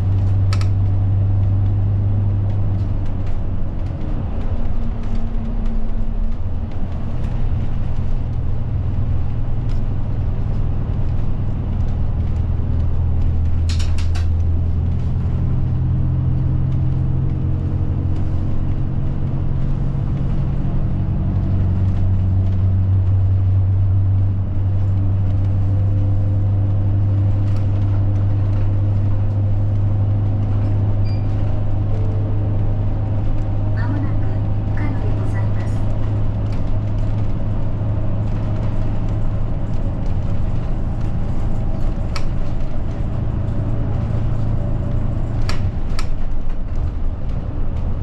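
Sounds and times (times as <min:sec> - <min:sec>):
bus engine running: 0:00.0 - 0:48.0.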